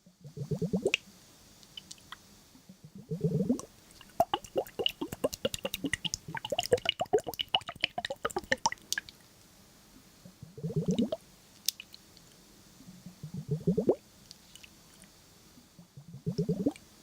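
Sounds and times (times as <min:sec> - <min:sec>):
wet clicks and drips: 0:01.6 - 0:02.2, 0:03.9 - 0:09.2, 0:10.9 - 0:12.0.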